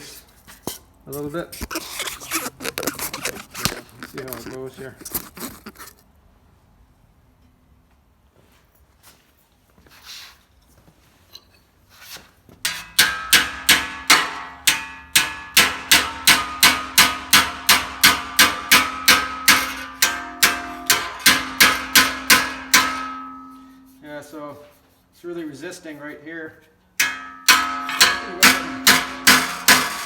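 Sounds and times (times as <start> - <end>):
hammer clanging on metal: 12.7 - 24.0, 27.0 - 30.0.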